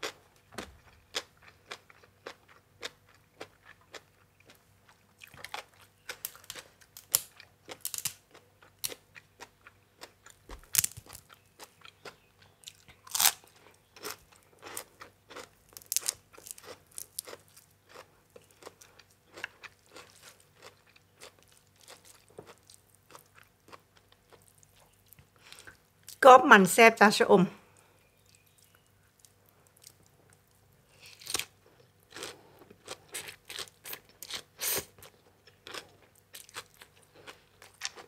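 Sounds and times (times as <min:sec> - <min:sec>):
person chewing crunchy vegetables: 0:00.0 - 0:26.2, 0:27.8 - 0:38.0.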